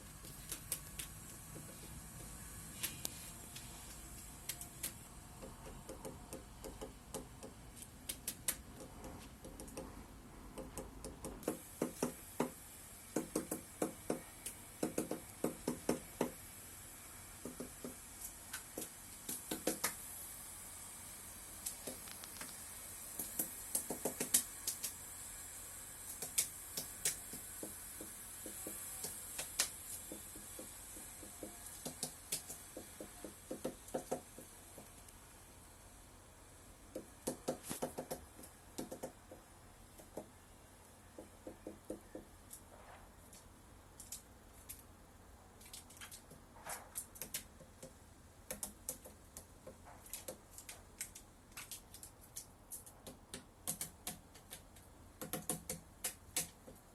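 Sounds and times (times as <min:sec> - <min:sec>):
woodpecker pecking at wood: 0:00.2 - 0:01.8, 0:04.5 - 0:09.9, 0:13.2 - 0:16.3, 0:23.2 - 0:24.9, 0:26.2 - 0:34.9, 0:36.9 - 0:39.4, 0:46.2 - 0:56.8.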